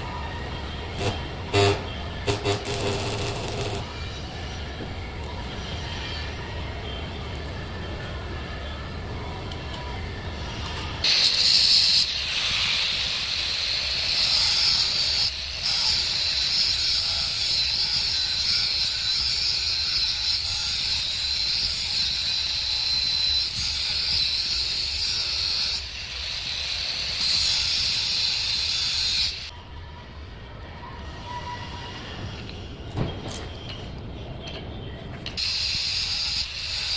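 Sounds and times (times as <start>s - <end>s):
arc welding crackling hiss: 1.0s - 3.9s.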